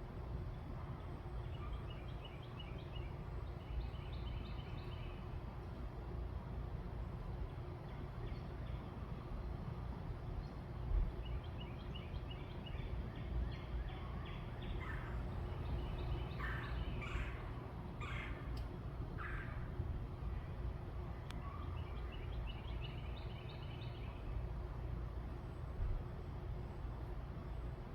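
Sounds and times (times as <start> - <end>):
birds calling: 11.2 - 19.9
harsh bird calls: 13.6 - 18.6, 19.2 - 19.8.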